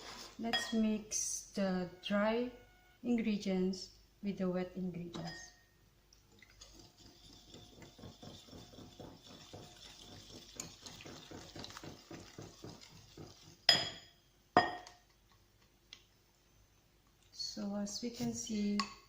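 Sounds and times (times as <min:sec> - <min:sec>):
batter being stirred in a bowl: 0:06.3 - 0:13.8.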